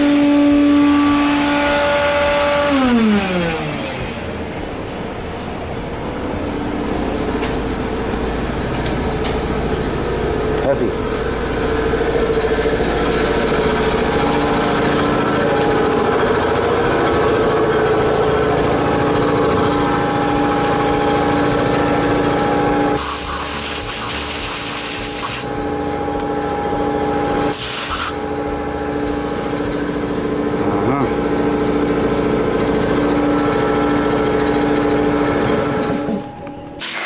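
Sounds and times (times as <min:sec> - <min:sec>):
steady motor hum: 0:00.0 - 0:37.0
air nozzle hissing: 0:23.0 - 0:25.5, 0:27.5 - 0:28.2, 0:36.8 - 0:37.0.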